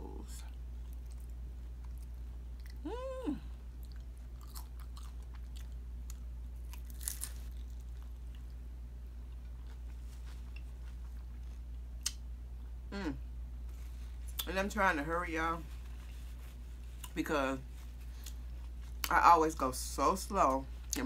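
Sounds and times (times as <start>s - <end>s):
low hum: 0.0s - 21.0s
chewing nachos: 0.4s - 12.8s, 15.6s - 19.2s
chips crunching: 3.8s - 8.5s.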